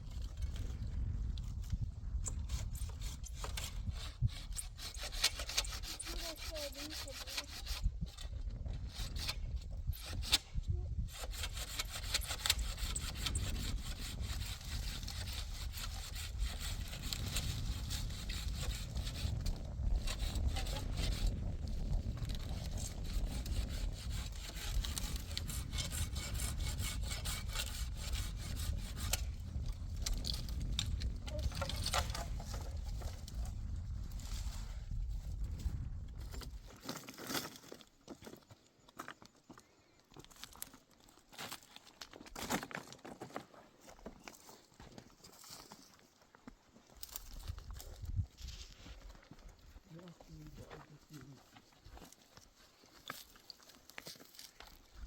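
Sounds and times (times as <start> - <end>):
saw rasping through wood: 2.4 - 8.2, 8.8 - 9.4, 10.0 - 10.4, 11.0 - 21.4, 22.2 - 29.4.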